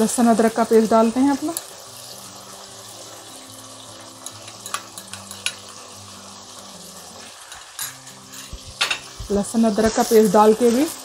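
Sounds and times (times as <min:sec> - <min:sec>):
chicken sizzling in hot oil: 0:00.0 - 0:11.0
spoon clicking against pan: 0:04.2 - 0:05.8.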